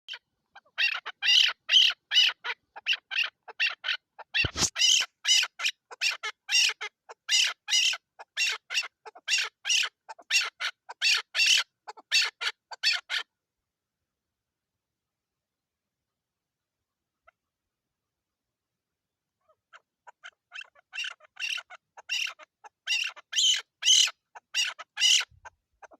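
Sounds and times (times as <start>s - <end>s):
partridge calling: 0.1s - 13.2s, 19.4s - 25.9s.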